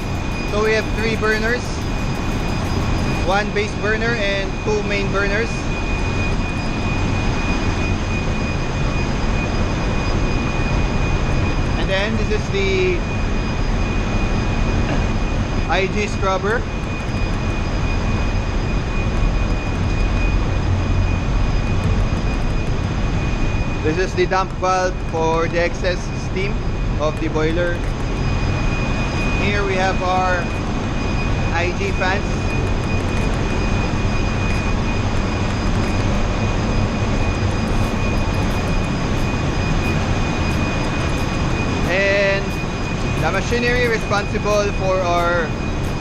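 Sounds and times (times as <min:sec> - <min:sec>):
engine room machinery noise: 0:00.0 - 0:46.0
fans running: 0:00.0 - 0:46.0
high machinery whine: 0:00.0 - 0:46.0.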